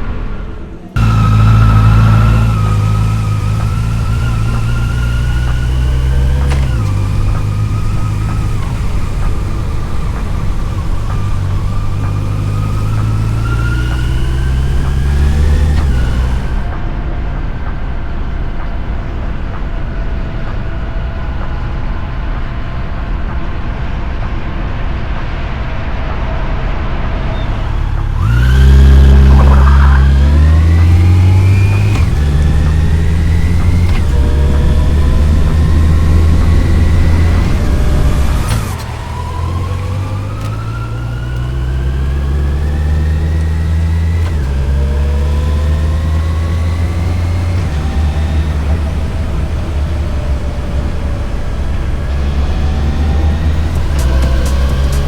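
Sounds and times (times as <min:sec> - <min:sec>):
motorcycle engine revving: 0:00.9 - 0:16.9, 0:27.1 - 0:55.0.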